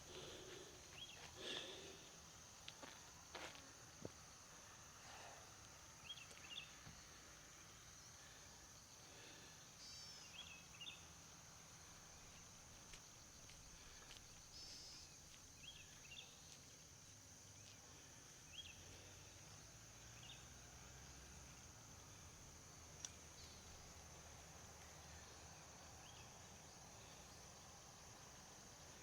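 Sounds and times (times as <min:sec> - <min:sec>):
high insect drone: 0:00.0 - 0:29.0
bird chirps: 0:09.8 - 0:11.0, 0:14.6 - 0:16.4.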